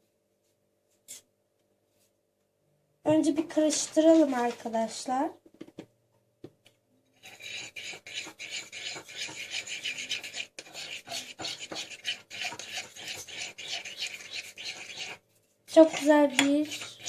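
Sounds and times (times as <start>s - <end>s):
utensil scraping a plate: 7.2s - 17.0s.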